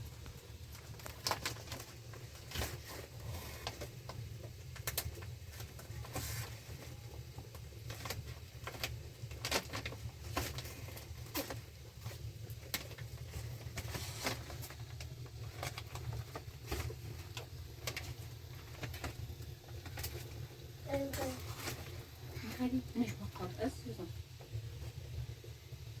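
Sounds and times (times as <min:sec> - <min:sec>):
plastic bags crinkling: 0:00.7 - 0:03.4.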